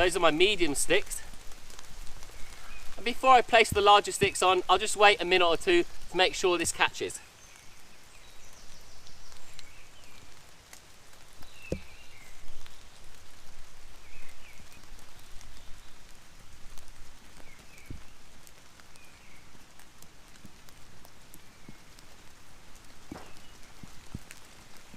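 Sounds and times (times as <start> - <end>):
rain pattering: 0.0 - 24.9
dull thumps: 23.1 - 23.4.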